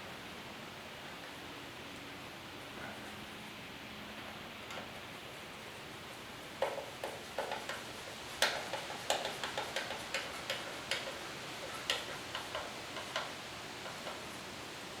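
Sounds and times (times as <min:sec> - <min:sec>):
small sharp clicks and taps: 0:06.6 - 0:14.2.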